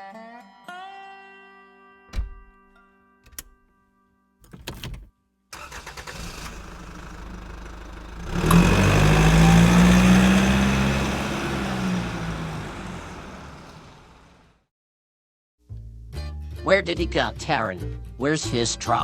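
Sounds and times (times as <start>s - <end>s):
truck engine revving: 5.6s - 14.5s.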